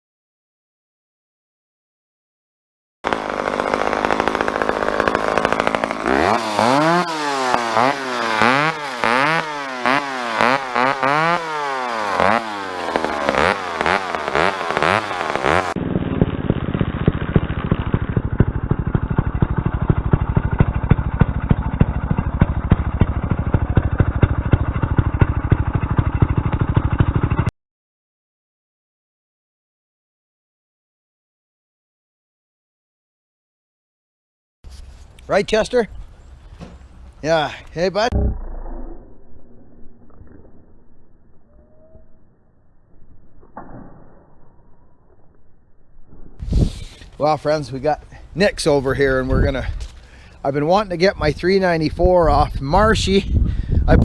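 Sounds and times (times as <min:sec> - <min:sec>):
chainsaw revving: 0:03.0 - 0:27.5.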